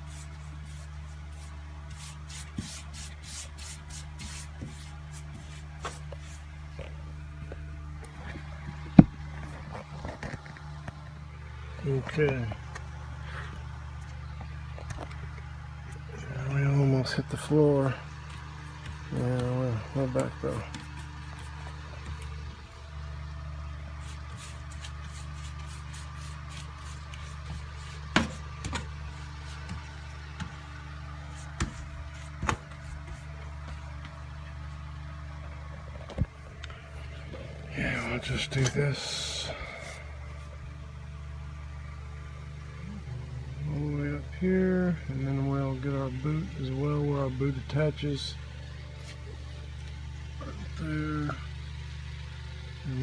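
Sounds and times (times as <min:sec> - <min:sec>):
brush strokes on sheet metal: 0:00.0 - 0:07.0, 0:23.9 - 0:34.0, 0:36.9 - 0:40.6
steady low hum: 0:00.0 - 0:53.0.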